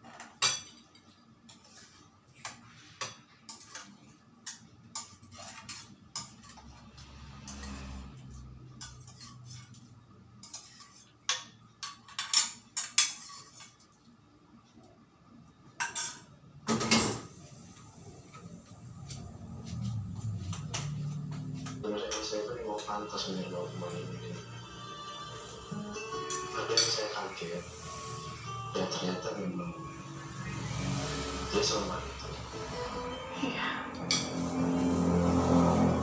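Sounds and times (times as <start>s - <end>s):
dishes clattering: 0.0s - 6.8s, 8.8s - 13.8s, 15.8s - 17.4s
dishes and cutlery clinking: 0.0s - 14.0s, 15.8s - 17.4s, 19.2s - 23.3s, 25.9s - 30.0s, 34.0s - 34.8s.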